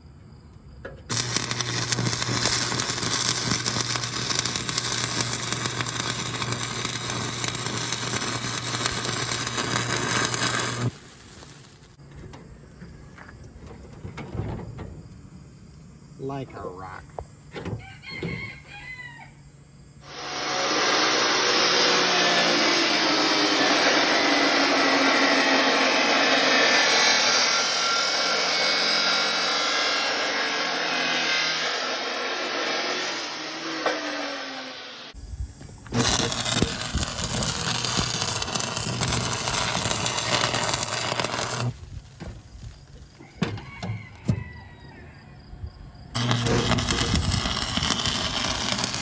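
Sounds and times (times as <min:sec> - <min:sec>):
power tool cutting metal: 0:01.1 - 0:11.8, 0:20.0 - 0:35.2, 0:35.9 - 0:41.8, 0:46.2 - 0:49.0
rough power tool noise: 0:01.1 - 0:12.0, 0:20.0 - 0:35.2, 0:35.9 - 0:44.4, 0:46.1 - 0:49.0.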